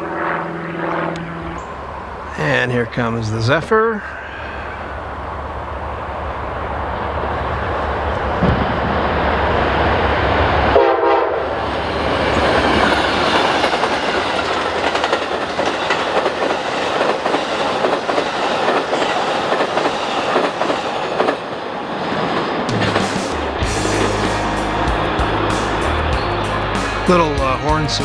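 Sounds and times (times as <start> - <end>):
diesel locomotive rumbling: 1.1 - 10.8, 22.7 - 28.0
passenger cars rushing: 1.2 - 10.8, 22.6 - 28.0
train horn: 10.6 - 11.6.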